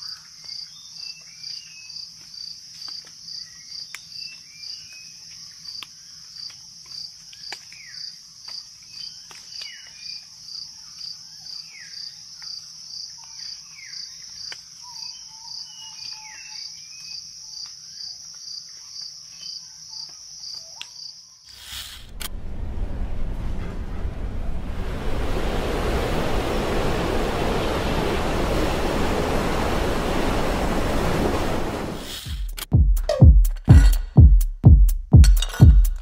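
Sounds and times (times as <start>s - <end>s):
crickets chirping: 0.0s - 32.1s
loud rushing noise: 21.9s - 32.4s.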